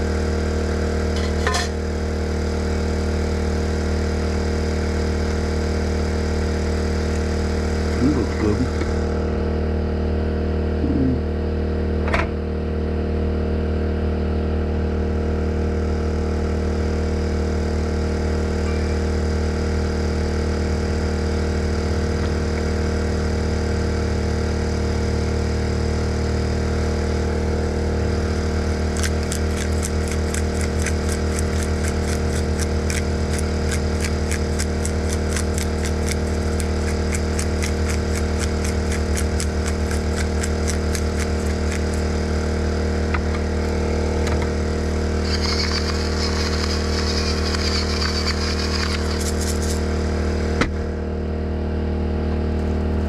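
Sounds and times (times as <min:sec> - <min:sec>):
generator engine running: 0:00.0 - 0:53.0
fast regular ticking: 0:28.8 - 0:42.4.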